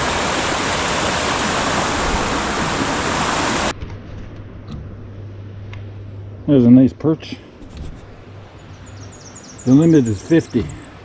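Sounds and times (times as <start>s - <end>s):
waterfall rushing: 0.0s - 3.7s
low hum: 3.6s - 9.4s.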